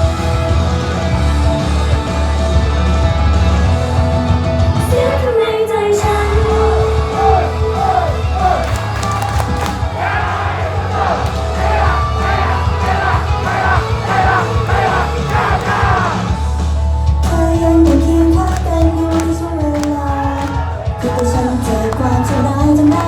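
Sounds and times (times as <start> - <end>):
pop song over sound system: 0.0 - 23.0
crowd shouting along: 6.1 - 16.4, 18.5 - 23.0.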